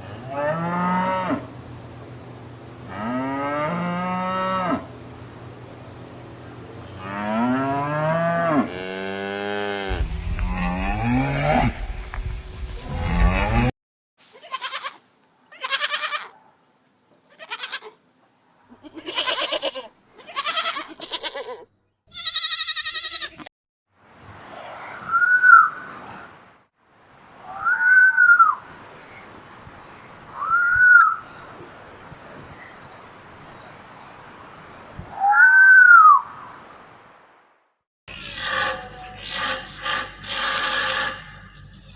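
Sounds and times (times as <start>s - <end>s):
animal bleating: 14.3s - 16.3s, 17.3s - 18.0s, 18.7s - 23.5s
cow lowing: 38.1s - 41.7s.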